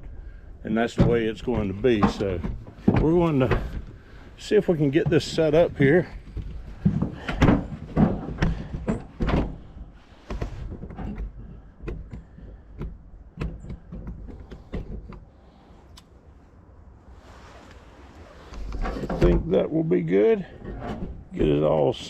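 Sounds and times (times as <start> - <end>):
metal clunks and knocks: 0.8 - 15.3.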